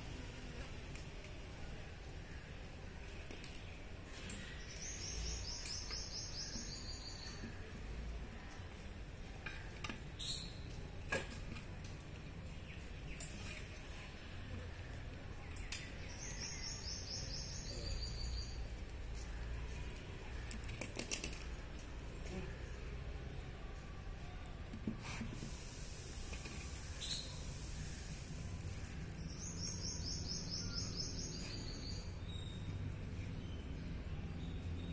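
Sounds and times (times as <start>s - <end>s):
songbird singing: 2.2s - 8.8s, 9.4s - 10.9s, 14.6s - 20.7s, 26.8s - 34.9s.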